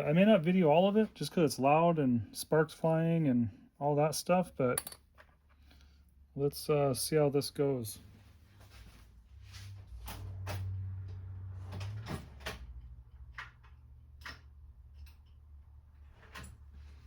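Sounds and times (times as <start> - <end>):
small parts clicking and knocking: 4.8 - 5.7, 12.8 - 16.5.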